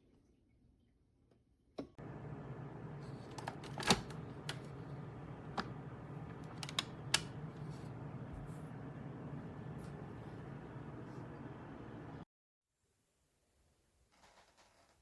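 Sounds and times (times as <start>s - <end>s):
coffee maker humming: 2.0s - 12.2s.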